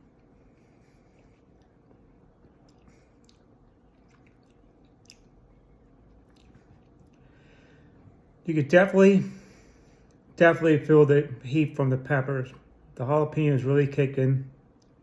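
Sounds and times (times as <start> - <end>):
faint chewing: 0.0 - 8.1
soft mouth clicks: 2.6 - 5.4.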